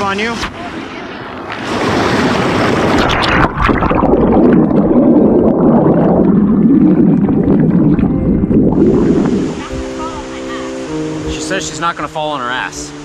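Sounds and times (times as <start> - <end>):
muffled underwater current churning: 0.5 - 9.9
splashing into water: 1.5 - 8.1.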